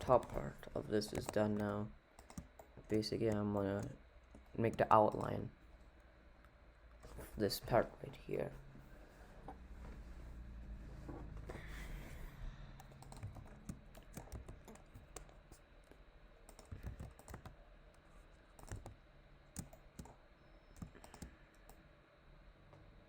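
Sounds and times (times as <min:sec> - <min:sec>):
computer keyboard and mouse clicks: 0:00.0 - 0:05.4, 0:12.8 - 0:21.8.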